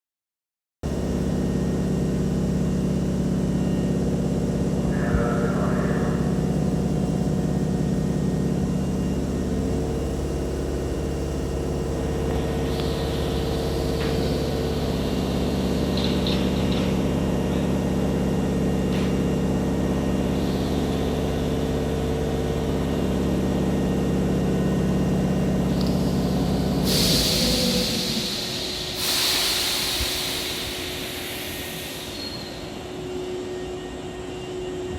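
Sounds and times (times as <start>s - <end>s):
train equipment humming: 0.9s - 34.9s
compressed air hiss: 26.7s - 32.9s.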